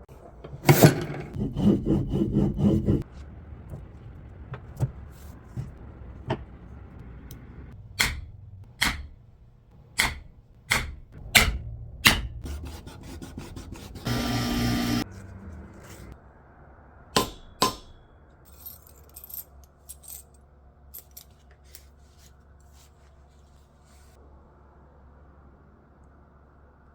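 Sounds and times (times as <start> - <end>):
sharp knocks of hand tools: 8.0 - 9.2, 10.0 - 12.4, 17.2 - 18.0
short motor buzz: 14.0 - 15.3.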